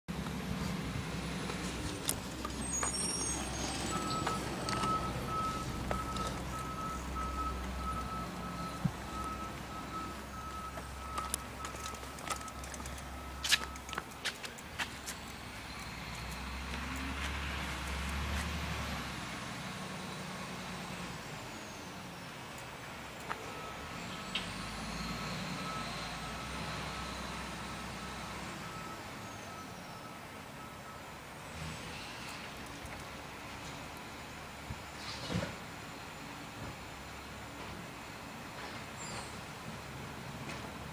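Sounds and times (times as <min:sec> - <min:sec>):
truck engine rumbling: 0:00.1 - 0:40.9
back-up alarm beeping: 0:02.9 - 0:14.4.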